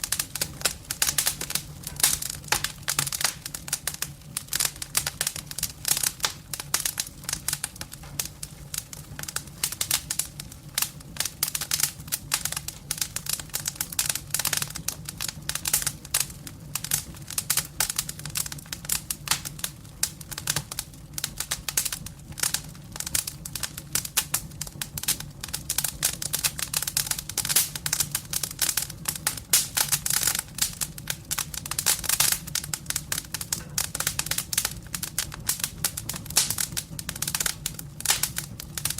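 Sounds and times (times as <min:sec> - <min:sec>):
firewood crackling and popping: 0:00.0 - 0:38.9.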